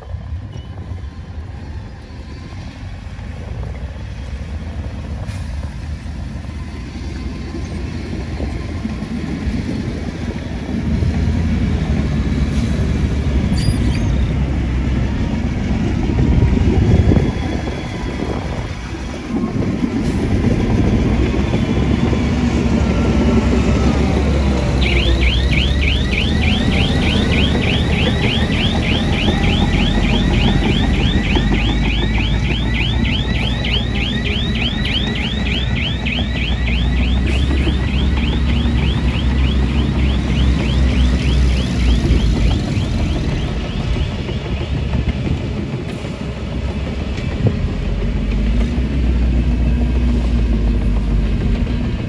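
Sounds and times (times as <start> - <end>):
heavy machine engine rumbling: 3.3 - 52.0
high warbling chirp: 20.7 - 44.2.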